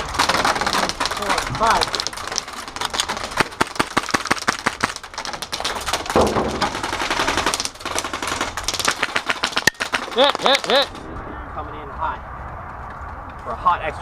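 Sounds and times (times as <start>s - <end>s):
airsoft rifles firing: 0.0s - 11.0s.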